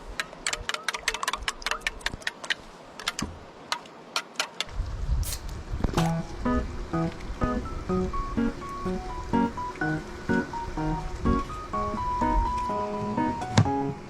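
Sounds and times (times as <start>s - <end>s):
background music: 6.0s - 14.0s.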